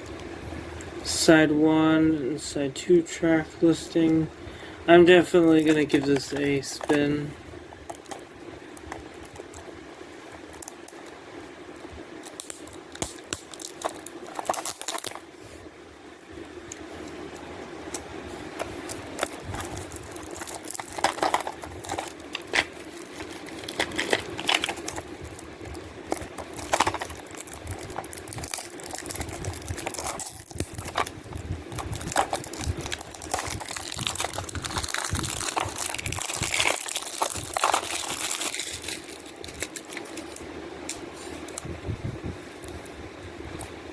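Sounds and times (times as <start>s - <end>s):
steady low hum: 0.0s - 43.9s
plastic shrink wrap crinkling: 5.0s - 9.7s, 12.2s - 15.3s, 18.3s - 41.7s.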